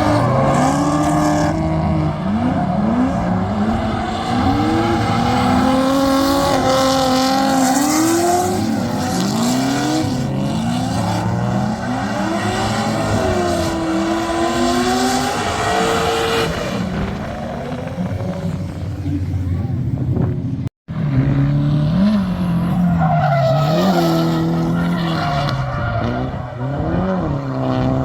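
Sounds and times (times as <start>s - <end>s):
car engine revving hard: 0.0s - 18.5s.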